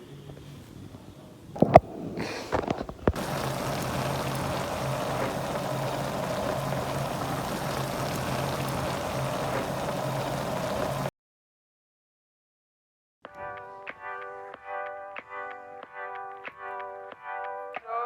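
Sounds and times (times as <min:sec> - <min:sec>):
running water: 0:03.1 - 0:11.1
low hum: 0:03.2 - 0:11.1.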